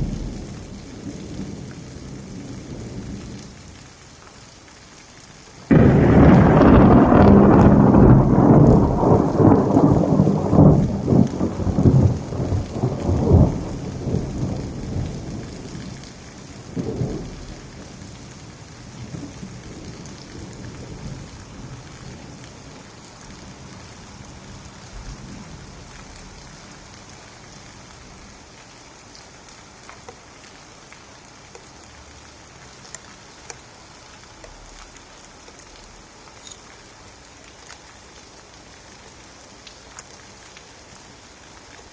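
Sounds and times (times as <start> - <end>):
thunder rumbling: 0.0 - 3.4, 5.7 - 27.0
steady rain: 0.0 - 41.9.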